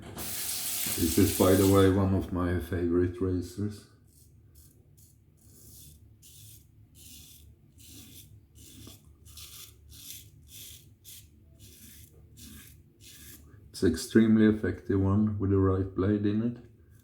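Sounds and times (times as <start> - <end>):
razor scraping stubble: 0.3 - 2.0, 4.0 - 13.5.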